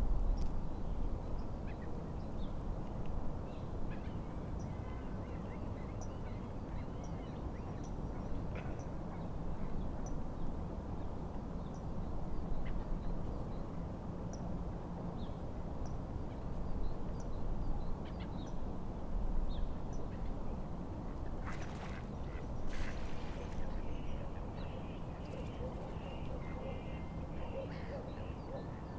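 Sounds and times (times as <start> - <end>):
lake waves lapping: 21.4 - 24.5.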